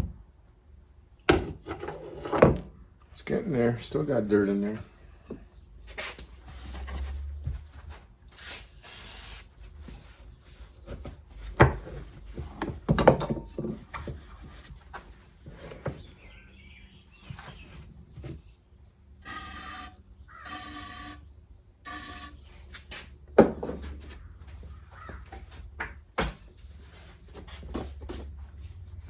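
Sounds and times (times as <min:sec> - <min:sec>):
scrubbing metal part: 0:19.2 - 0:21.3, 0:21.9 - 0:22.4
short squeak: 0:19.2 - 0:21.3, 0:21.9 - 0:22.7.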